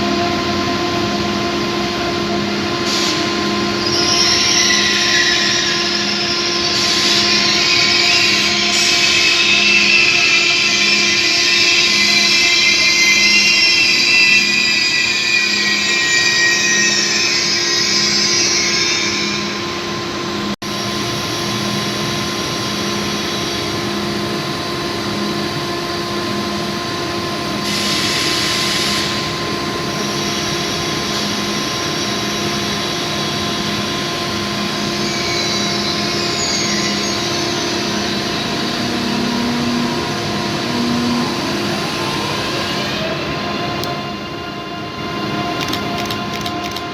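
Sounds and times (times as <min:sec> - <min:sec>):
train wheels squealing on rails: 0:01.8 - 0:46.9.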